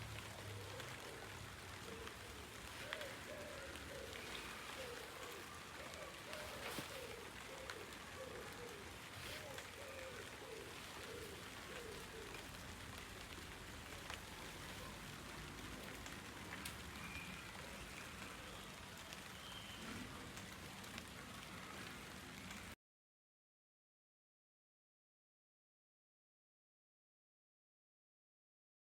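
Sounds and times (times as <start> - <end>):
steady rain falling: 0.0 - 22.8.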